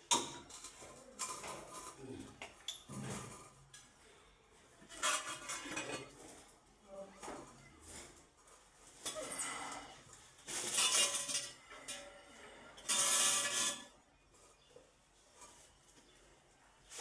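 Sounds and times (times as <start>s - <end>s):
scraping and clattering: 10.4s - 14.7s.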